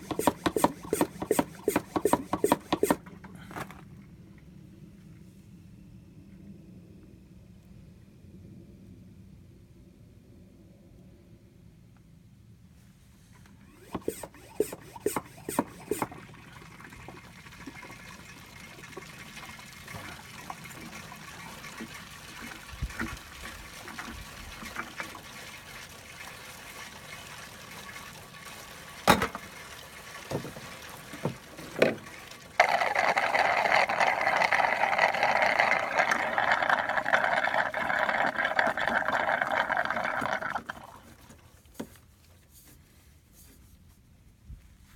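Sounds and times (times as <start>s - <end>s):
liquid pouring: 0.0s - 3.0s, 13.7s - 41.4s.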